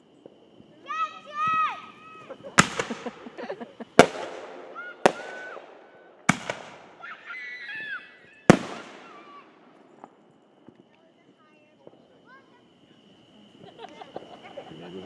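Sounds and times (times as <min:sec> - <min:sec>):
fireworks exploding: 0:00.0 - 0:12.8
crackling echoing tail: 0:01.9 - 0:07.3, 0:08.5 - 0:11.0.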